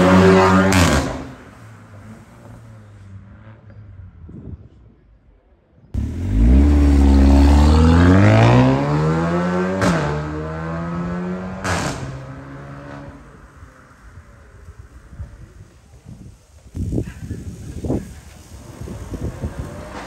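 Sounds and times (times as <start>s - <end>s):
engine accelerating hard: 6.0s - 13.5s.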